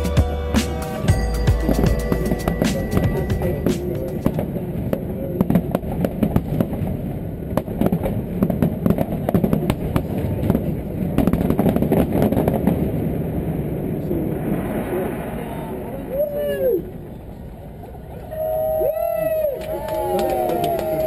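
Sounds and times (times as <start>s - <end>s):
voices: 0.0s - 5.6s, 18.3s - 21.0s.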